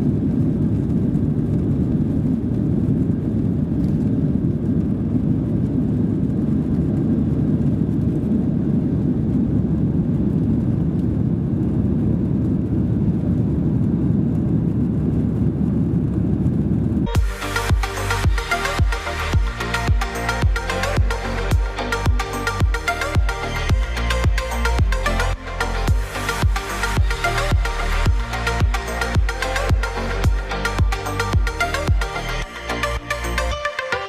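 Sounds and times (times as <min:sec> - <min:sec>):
jet engine cabin rumble: 0:00.0 - 0:23.3
music: 0:17.1 - 0:34.0.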